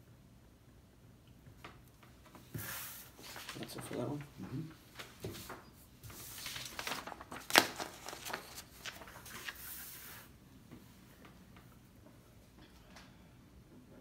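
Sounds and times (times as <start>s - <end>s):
paper rustling: 2.2s - 10.3s.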